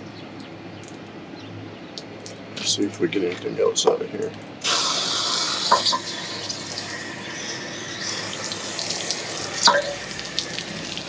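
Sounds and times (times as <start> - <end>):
water rushing out of tank: 4.6 - 11.0.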